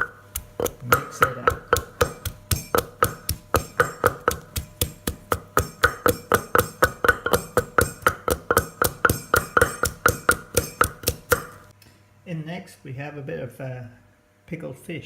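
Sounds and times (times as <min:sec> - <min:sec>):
pestle pounding in a mortar: 0:00.0 - 0:11.7.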